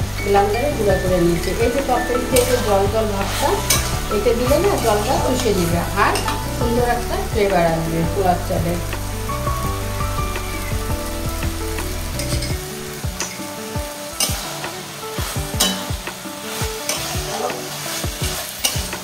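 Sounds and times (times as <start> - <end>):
curry sizzling in a pan: 0.0 - 19.0
metal spatula scraping a pan: 1.3 - 7.3.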